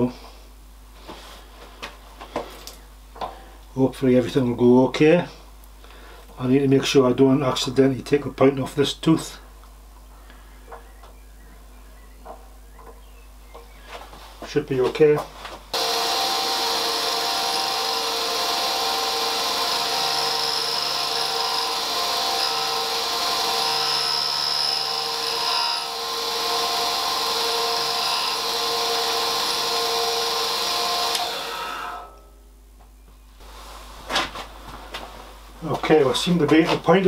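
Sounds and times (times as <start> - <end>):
grinder motor hum: 15.7 - 32.2.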